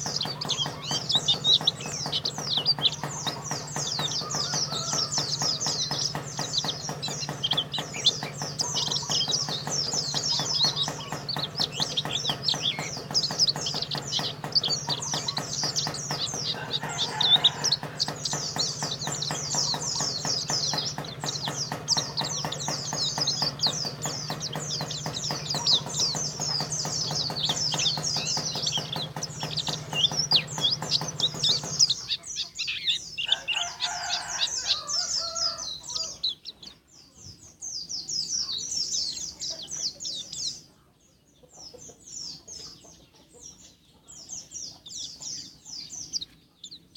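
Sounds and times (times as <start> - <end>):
songbird twittering and trilling: 0.0 - 46.9.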